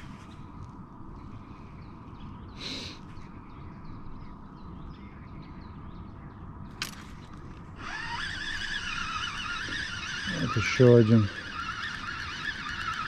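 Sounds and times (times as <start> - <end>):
wavering whine: 7.7 - 13.0.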